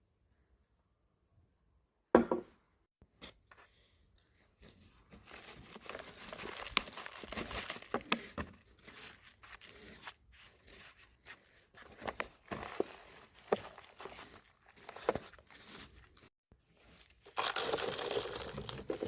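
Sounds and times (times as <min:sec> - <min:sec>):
dry rustling and crackling: 0:05.2 - 0:16.3, 0:16.9 - 0:19.0.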